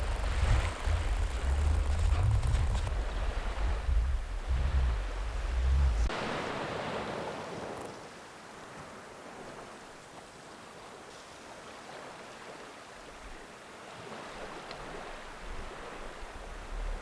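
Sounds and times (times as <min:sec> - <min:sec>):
wind buffeting microphone: 0:00.0 - 0:07.8
sea water washing on shore: 0:00.0 - 0:17.0.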